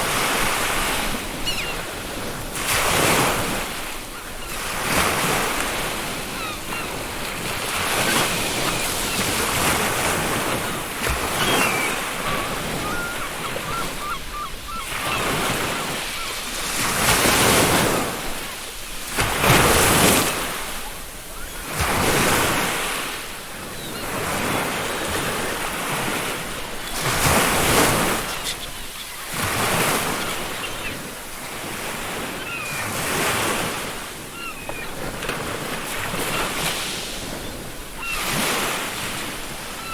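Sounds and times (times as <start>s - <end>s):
ocean waves breaking on beach: 0.0s - 39.9s
faint seagull calls: 1.3s - 1.9s, 6.2s - 16.5s, 26.8s - 31.2s, 32.3s - 33.0s, 34.3s - 35.1s, 37.5s - 38.6s, 39.7s - 39.9s.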